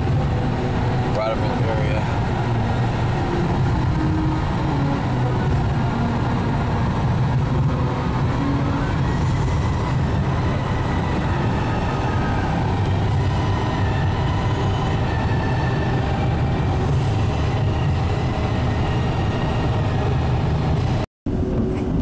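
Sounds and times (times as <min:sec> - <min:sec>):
car road and engine noise: 0:00.0 - 0:22.0.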